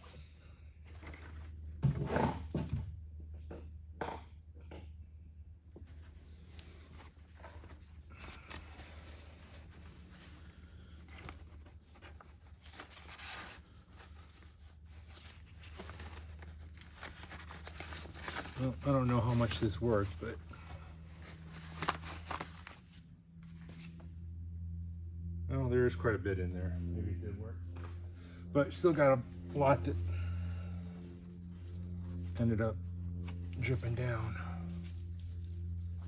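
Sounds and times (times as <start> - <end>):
steady low hum: 0.0 - 36.0
handling noises: 5.8 - 24.0.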